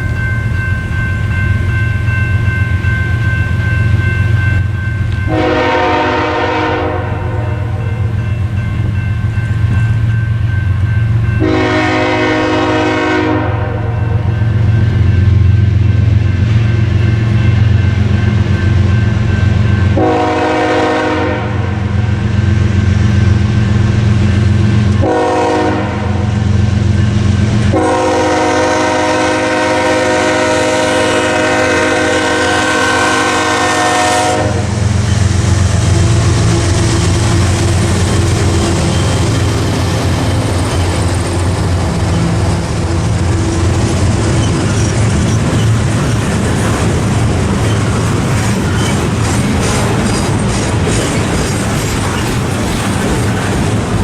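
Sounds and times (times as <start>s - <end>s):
train wheels on rails: 0.0s - 54.0s
locomotive horn blasts: 5.3s - 8.1s, 11.4s - 14.3s, 19.9s - 21.8s, 25.0s - 26.3s, 27.7s - 34.8s, 35.6s - 39.0s
locomotive engine running: 31.1s - 54.0s.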